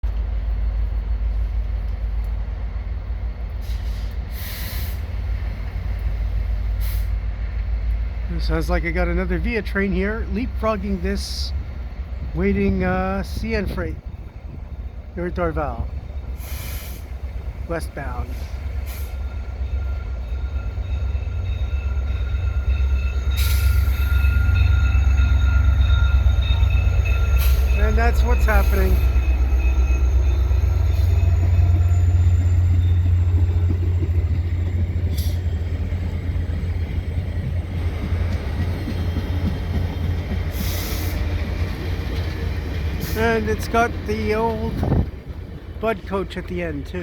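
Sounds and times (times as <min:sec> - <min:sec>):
diesel locomotive idling: 0:00.0 - 0:47.0
train rumbling on rails: 0:00.0 - 0:47.0
rushing hiss of passing train: 0:00.2 - 0:47.0
air brake hiss: 0:03.6 - 0:05.1, 0:06.8 - 0:07.2, 0:16.4 - 0:17.2
high wheel squeal: 0:18.3 - 0:35.6.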